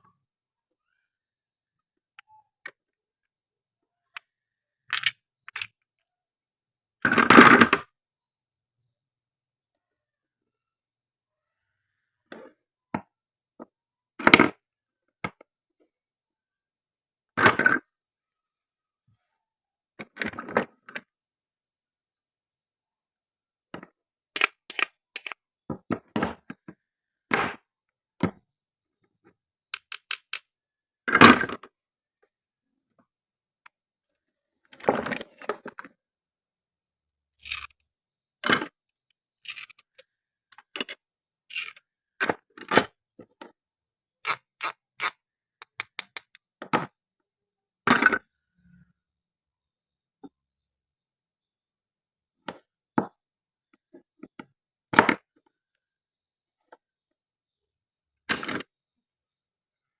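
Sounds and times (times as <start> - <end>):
toy food clicks and clacks: 24.4 - 25.4, 29.7 - 30.5, 37.4 - 37.8, 39.4 - 41.8, 44.2 - 46.4.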